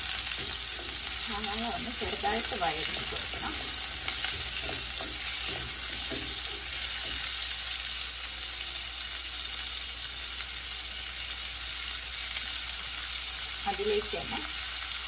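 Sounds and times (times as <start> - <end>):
wooden spoon scraping a pan: 0.0 - 7.6
onion sizzling in oil: 0.0 - 15.0.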